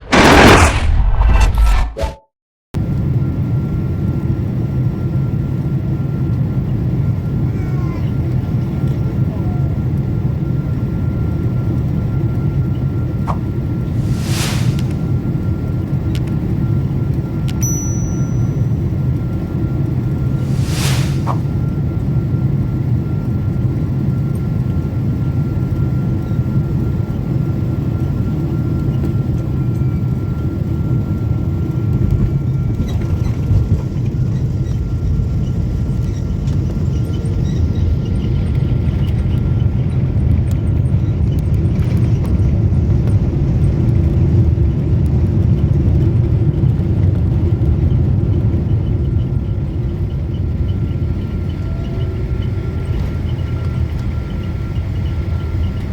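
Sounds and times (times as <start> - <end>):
rumble of engines and airflow: 2.8 - 55.9.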